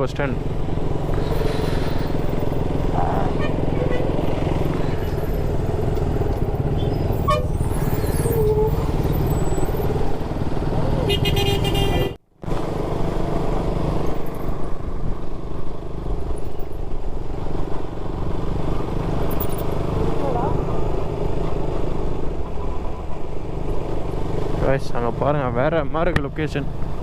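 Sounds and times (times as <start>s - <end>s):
motorcycle engine: 0.0s - 27.0s
vehicle horn honking: 3.0s - 4.5s, 6.8s - 7.5s, 11.0s - 12.2s.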